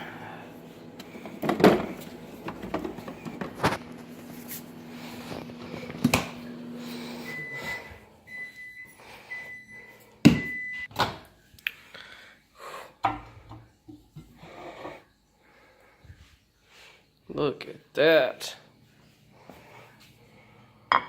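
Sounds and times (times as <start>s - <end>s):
microwave oven humming: 0.0s - 10.9s
microwave beeps: 6.3s - 10.9s.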